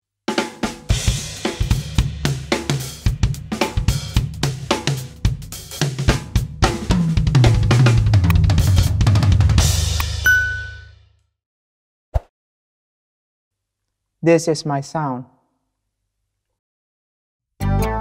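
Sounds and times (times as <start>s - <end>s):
drum kit groove: 0.3s - 10.7s
backing track bass line: 6.1s - 10.8s.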